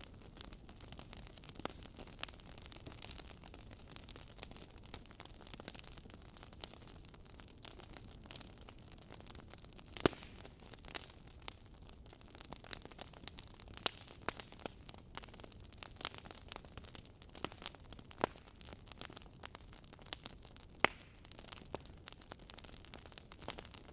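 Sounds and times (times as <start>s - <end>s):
low hiss of burning logs: 0.0s - 23.9s
wood fire crackling and popping: 0.0s - 23.9s.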